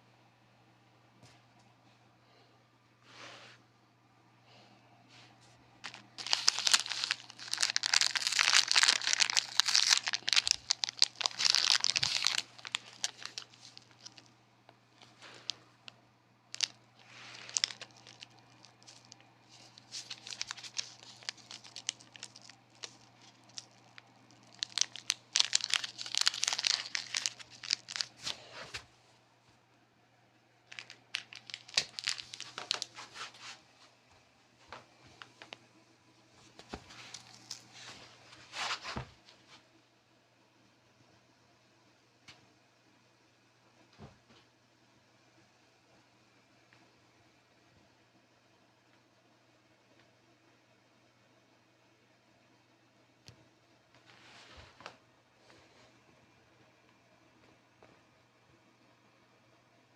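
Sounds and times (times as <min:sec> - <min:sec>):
wrapping crinkling and tearing: 0:05.8 - 0:14.3, 0:16.5 - 0:28.5, 0:30.7 - 0:33.3, 0:36.6 - 0:37.9
crackles: 0:05.8 - 0:28.9, 0:30.7 - 0:33.5, 0:36.4 - 0:38.0.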